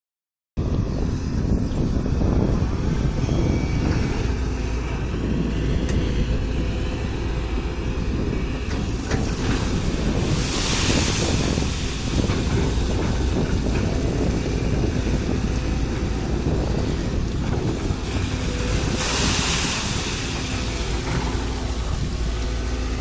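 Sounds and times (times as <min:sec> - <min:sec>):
excavator engine rumbling: 0:00.6 - 0:23.0
hydraulic rushing hiss: 0:08.9 - 0:13.6, 0:18.0 - 0:23.0.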